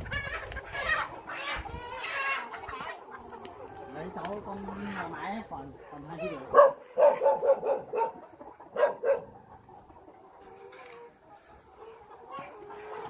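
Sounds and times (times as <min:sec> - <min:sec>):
dog barking: 0:06.5 - 0:09.4.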